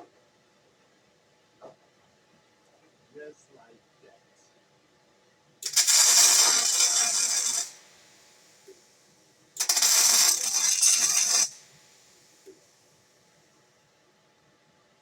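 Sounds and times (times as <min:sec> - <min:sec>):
welding arc crackling: 0:05.6 - 0:08.4, 0:09.6 - 0:11.7.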